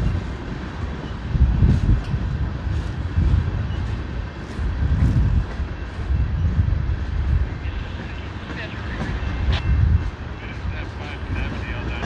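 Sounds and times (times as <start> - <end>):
freight train rumble: 0.0 - 12.0
wind buffeting microphone: 0.0 - 12.0.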